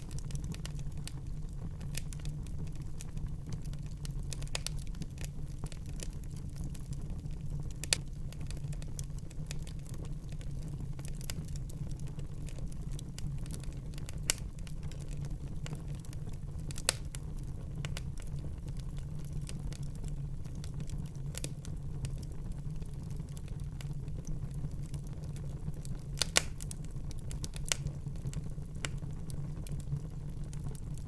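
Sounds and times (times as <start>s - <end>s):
fire crackling in a fireplace: 0.0s - 31.0s
loud fire pops: 25.2s - 29.8s.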